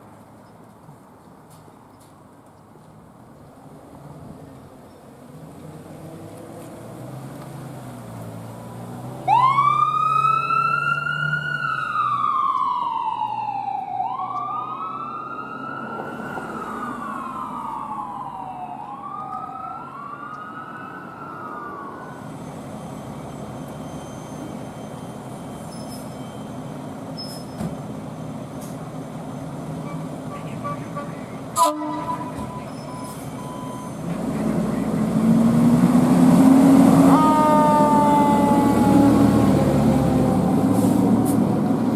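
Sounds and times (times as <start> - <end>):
traffic noise: 0.0 - 41.9
emergency sirens wailing: 9.2 - 25.6, 30.3 - 41.9.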